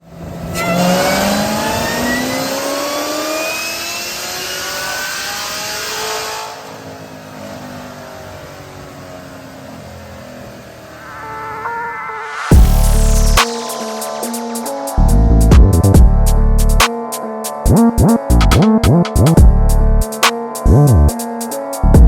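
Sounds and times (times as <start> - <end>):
car engine accelerating hard: 0.1 - 11.5.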